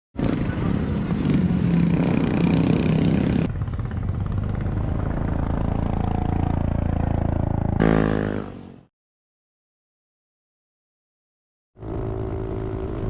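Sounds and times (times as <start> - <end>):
motorcycle engine running: 0.2 - 8.7, 11.8 - 13.0.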